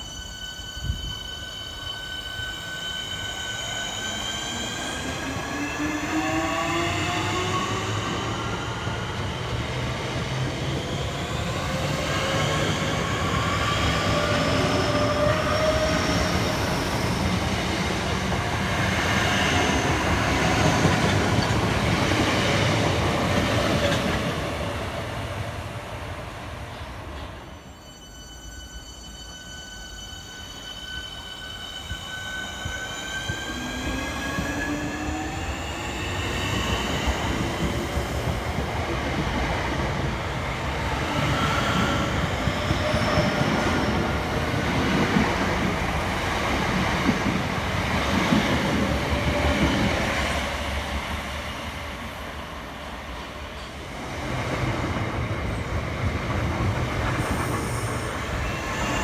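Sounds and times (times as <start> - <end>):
train whine rising: 27.4 - 59.0.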